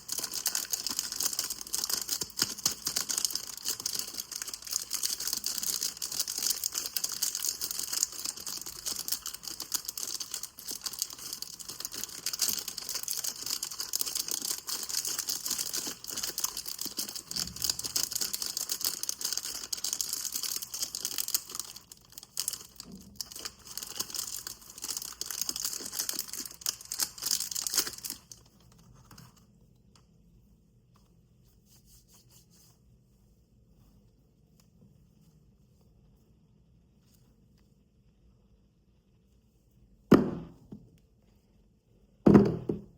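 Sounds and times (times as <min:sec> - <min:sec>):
dry soap crunching: 0:00.0 - 0:28.4.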